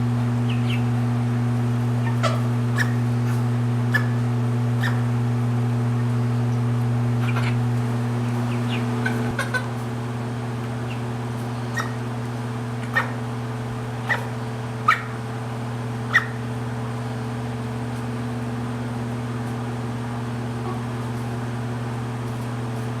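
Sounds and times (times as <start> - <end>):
low mechanical hum: 0.0 - 23.0
sharp animal calls: 2.0 - 4.2, 4.8 - 5.0, 7.2 - 7.6, 8.2 - 9.7, 10.8 - 12.1, 12.8 - 13.3, 14.0 - 15.2, 16.0 - 16.5.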